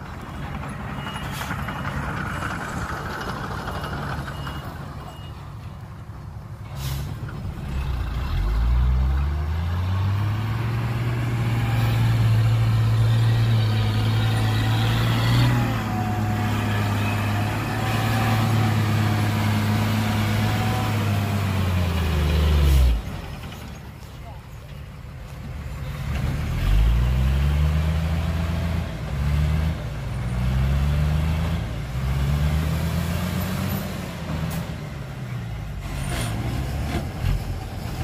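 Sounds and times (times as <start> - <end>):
diesel truck engine revving: 6.8 - 23.7, 25.7 - 38.0.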